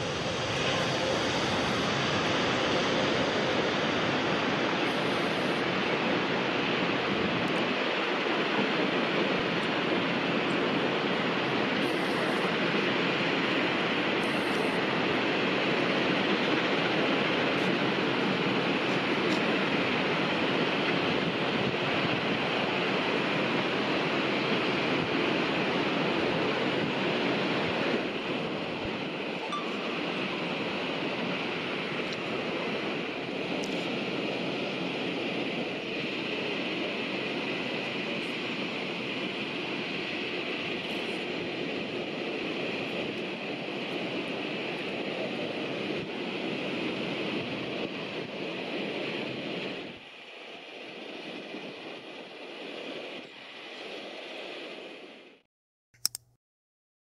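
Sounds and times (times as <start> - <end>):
jet engines roaring: 0.0 - 55.4.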